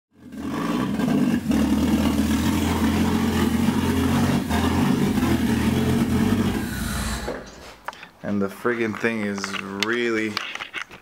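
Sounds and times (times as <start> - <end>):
loud car engine idling: 0.2 - 7.6.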